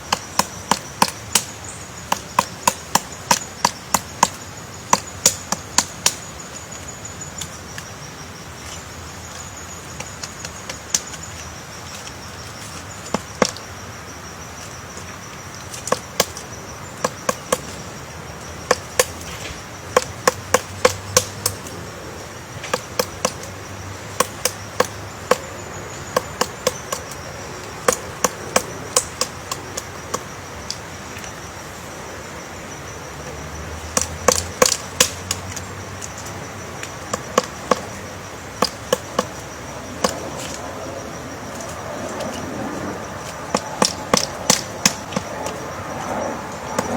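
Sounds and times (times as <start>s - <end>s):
sharp knocks: 18.6s - 21.7s, 33.9s - 35.6s, 43.5s - 45.3s.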